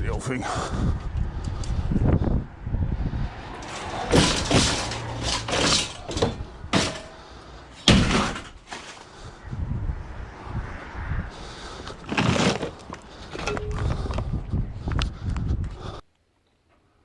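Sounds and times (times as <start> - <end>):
scrap metal clattering bangs: 3.6 - 9.0.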